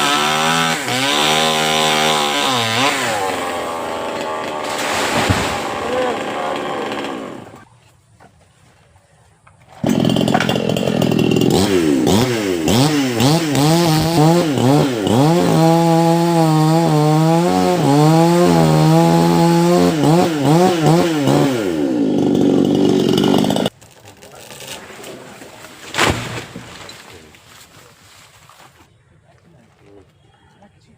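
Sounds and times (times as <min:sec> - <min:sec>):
chainsaw cutting wood: 0:00.0 - 0:07.6, 0:09.7 - 0:24.8.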